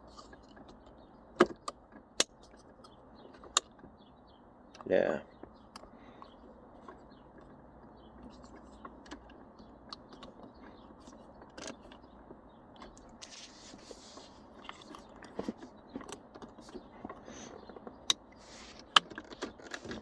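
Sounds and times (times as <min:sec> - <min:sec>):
plastic trim creaking: 0:14.6 - 0:20.0.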